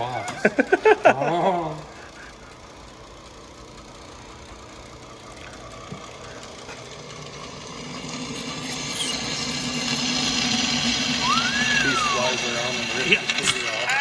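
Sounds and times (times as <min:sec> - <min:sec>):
power drill boring plexiglass: 0:06.2 - 0:14.0.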